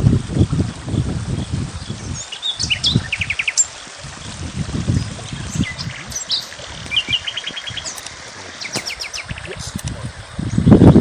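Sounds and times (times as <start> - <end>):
songbirds chirping: 1.4 - 10.7
bird trill of rapid notes: 8.6 - 9.6.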